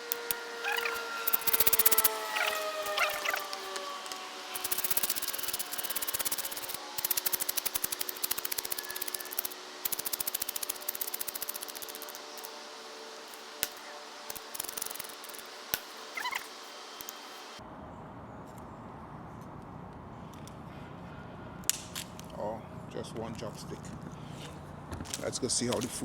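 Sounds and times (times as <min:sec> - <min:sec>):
knife scraping wood: 0:00.1 - 0:12.6, 0:13.7 - 0:15.5
sharp click: 0:04.6 - 0:12.5.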